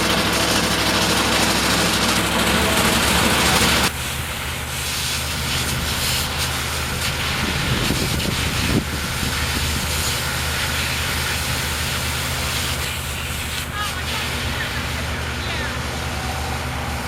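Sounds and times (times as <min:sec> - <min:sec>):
truck engine idling: 0:00.0 - 0:17.0
water spray hissing: 0:03.4 - 0:17.0.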